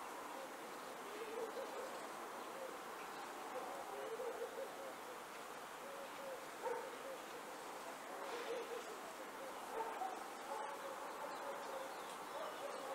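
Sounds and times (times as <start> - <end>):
faint forest hiss: 0.0 - 12.9
bird hooting: 3.5 - 5.2, 5.8 - 7.6, 8.3 - 11.9.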